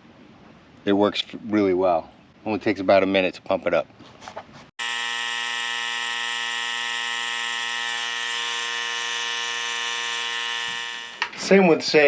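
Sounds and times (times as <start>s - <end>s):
tire inflator buzzing hum: 4.8s - 11.4s.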